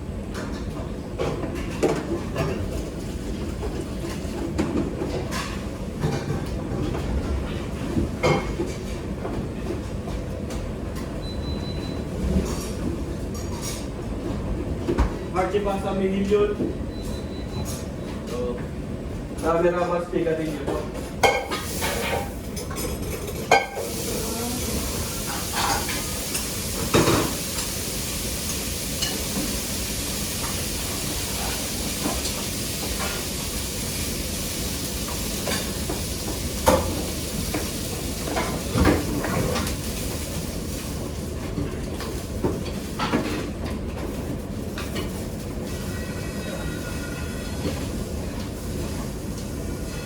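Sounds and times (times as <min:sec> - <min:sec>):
utensils and dishes clinking: 0:21.2 - 0:27.8, 0:28.4 - 0:29.7.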